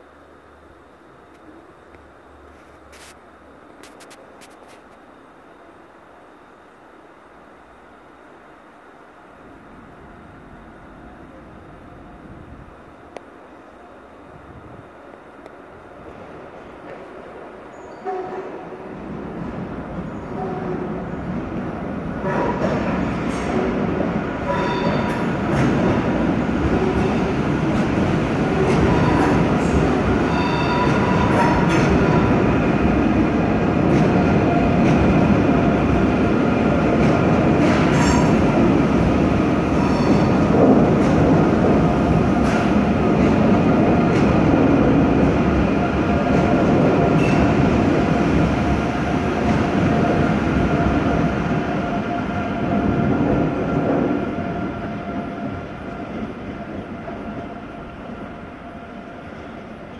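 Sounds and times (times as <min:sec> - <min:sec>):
train wheels rumbling on track: 0:14.3 - 0:59.9.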